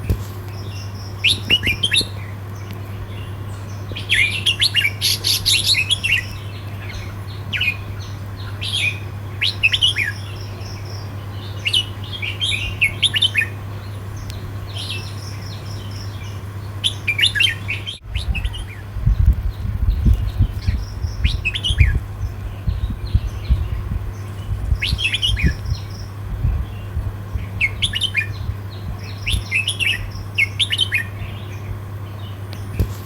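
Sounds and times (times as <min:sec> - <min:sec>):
low rumbling noise: 0:00.0 - 0:33.0
steady low hum: 0:00.0 - 0:33.0
bird singing whistled phrases: 0:04.0 - 0:10.6, 0:14.8 - 0:18.9, 0:24.7 - 0:26.2, 0:29.1 - 0:31.4.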